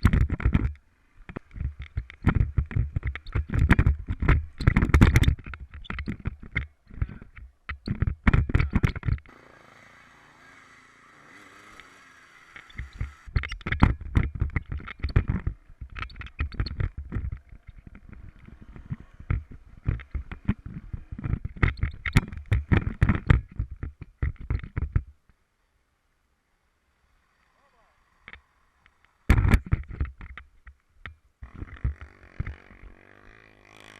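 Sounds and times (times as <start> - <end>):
rumbling and knocking on microphone: 0.0 - 9.3, 12.8 - 25.2, 29.3 - 32.9.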